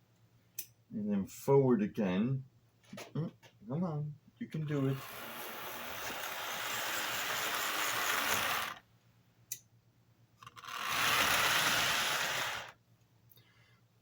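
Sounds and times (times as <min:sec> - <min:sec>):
model locomotive motor and gears: 0:04.7 - 0:08.8, 0:10.4 - 0:12.8.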